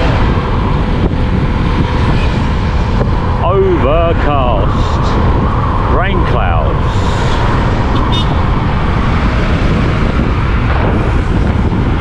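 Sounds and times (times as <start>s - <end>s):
road noise: 0.0s - 12.0s
wind buffeting on microphone: 0.0s - 12.0s
motorcycle engine: 6.9s - 12.0s.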